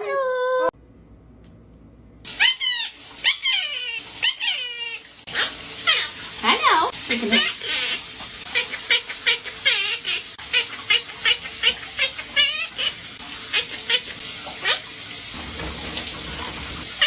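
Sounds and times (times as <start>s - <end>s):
parrot chirping and squeaking: 2.3s - 6.2s, 7.4s - 14.8s
parrot warbling calls: 2.3s - 14.9s.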